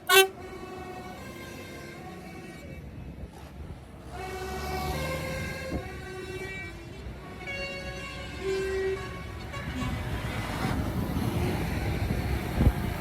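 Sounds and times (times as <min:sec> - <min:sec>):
vehicle horns tooting: 0:00.0 - 0:03.0, 0:04.1 - 0:10.6
tractor engines rumbling: 0:00.0 - 0:13.0.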